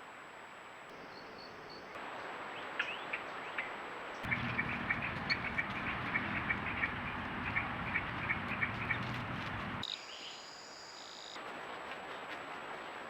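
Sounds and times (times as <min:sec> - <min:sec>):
low steady hum: 0:04.3 - 0:09.8.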